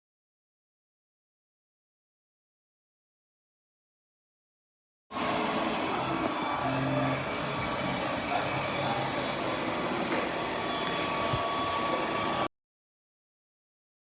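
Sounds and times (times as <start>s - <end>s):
robot vacuum whirring: 5.2s - 12.5s.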